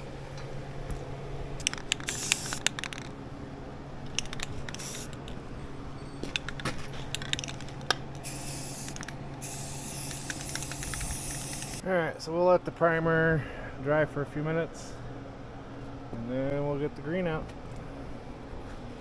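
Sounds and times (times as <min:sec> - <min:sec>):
low steady hum: 0:00.0 - 0:19.0
aerosol spray hissing: 0:01.6 - 0:02.8, 0:04.2 - 0:05.2, 0:08.2 - 0:11.8.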